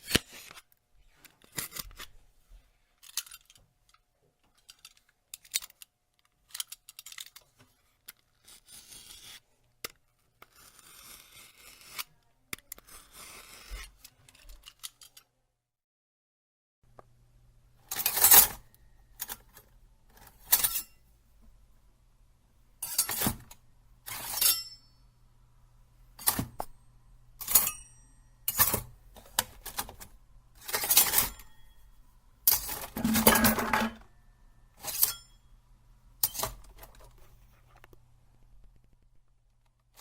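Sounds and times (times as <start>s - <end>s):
knife blade clinking and scraping: 20.5s - 21.0s, 22.8s - 23.5s, 24.1s - 24.9s, 27.4s - 28.9s, 34.8s - 35.5s, 36.2s - 36.6s.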